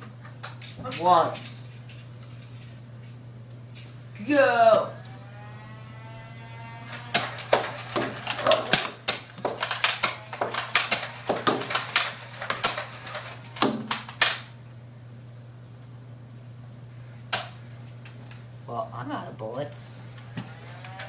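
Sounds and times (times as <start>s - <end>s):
toy blasters firing darts: 4.7s - 14.6s, 20.2s - 21.0s.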